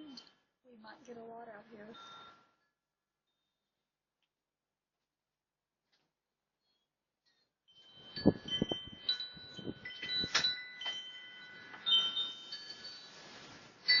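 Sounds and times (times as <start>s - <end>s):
wind chimes ringing: 1.8s - 2.7s, 7.7s - 14.0s
wind buffeting microphone: 8.1s - 10.5s.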